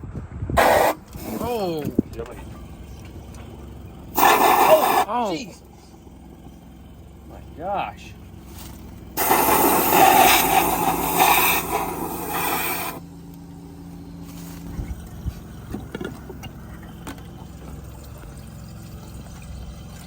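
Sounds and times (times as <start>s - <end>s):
water and air spraying from engine: 0.6s - 20.0s
small knocks: 15.7s - 18.4s.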